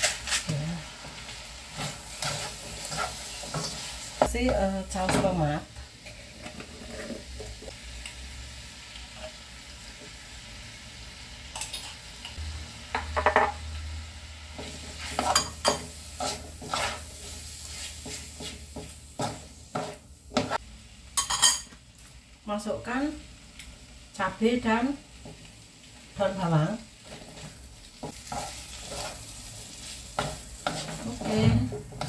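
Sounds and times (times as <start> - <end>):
spatula and spoon scraping pan: 0.0 - 8.2, 14.5 - 20.6, 26.9 - 32.0
filling sizzling in a wok: 0.0 - 32.0.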